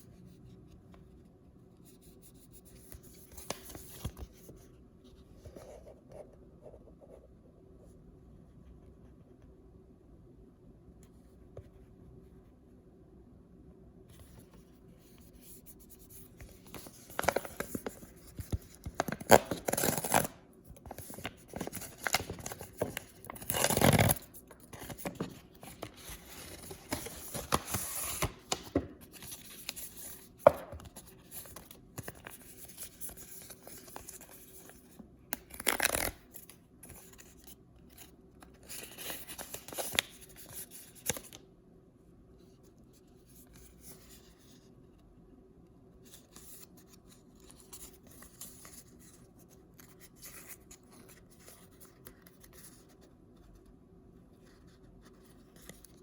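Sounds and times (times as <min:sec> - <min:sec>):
packaging crinkling: 0:18.7 - 0:29.8
paper bags tearing: 0:21.6 - 0:24.9.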